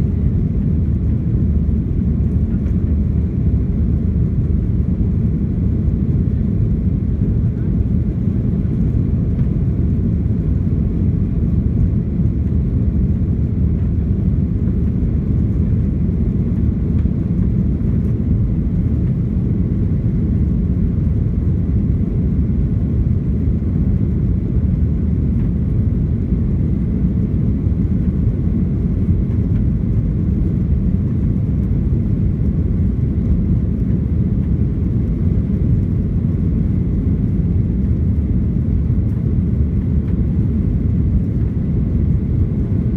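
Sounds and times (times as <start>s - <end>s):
airliner cabin roar: 0.0s - 42.9s.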